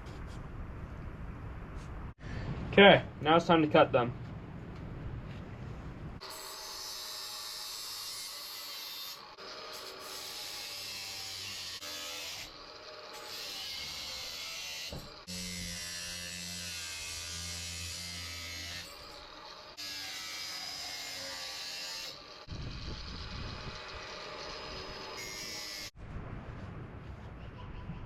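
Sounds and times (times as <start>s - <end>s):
power tool cutting steel: 6.2s - 26.0s.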